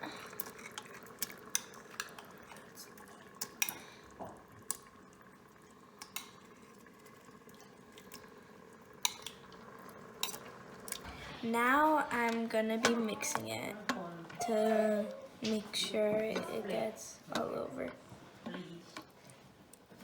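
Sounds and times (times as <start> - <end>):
wet sauce sounds: 0.0 - 19.9
utensils clinking against pot: 12.2 - 18.0.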